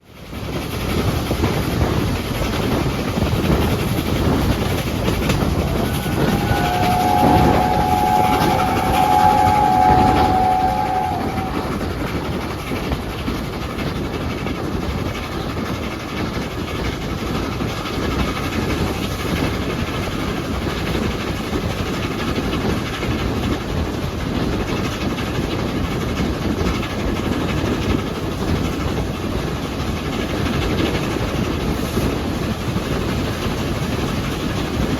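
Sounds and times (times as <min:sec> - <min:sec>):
steam train rumble: 0:00.0 - 0:34.9
steam whistle held note: 0:05.3 - 0:12.7.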